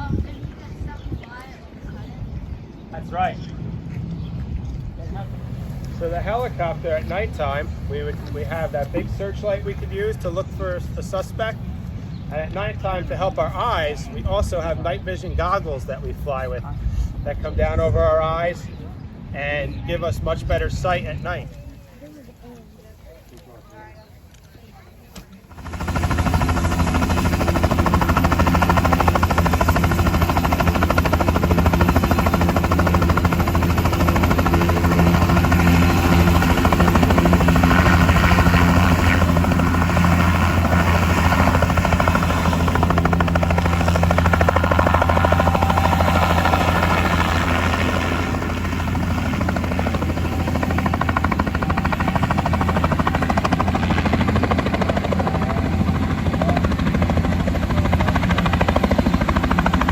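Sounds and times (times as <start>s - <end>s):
helicopter engine whine: 4.6s - 17.5s, 25.4s - 59.9s
helicopter rotor thumping: 25.2s - 59.9s.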